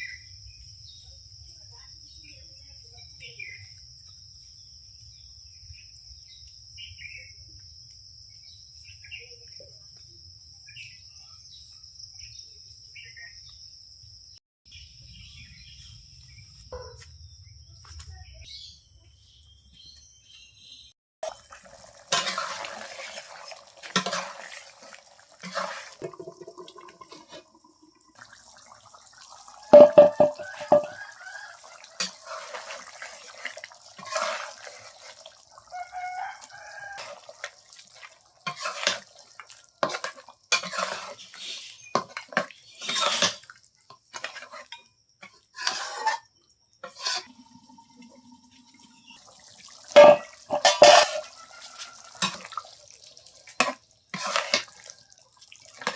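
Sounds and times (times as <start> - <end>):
water splashing and pouring: 21.2 - 41.4, 46.9 - 55.9
dishes clinking and knocking: 29.7 - 31.0, 50.0 - 51.2.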